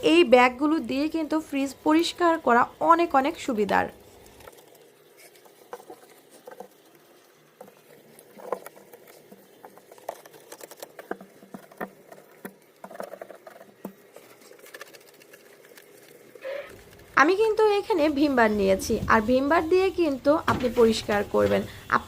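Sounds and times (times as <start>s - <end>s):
net bag scrubbing plastic: 3.2s - 18.8s.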